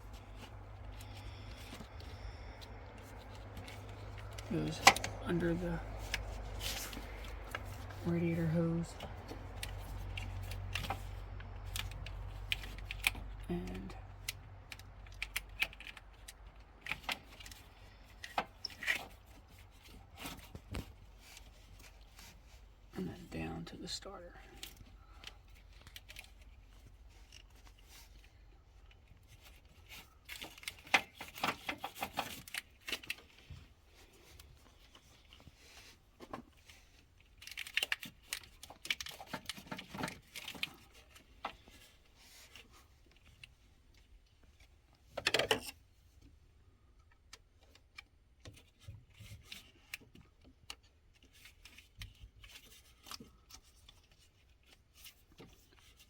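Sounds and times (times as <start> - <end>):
hands rubbing and rustling: 0.0 - 13.2.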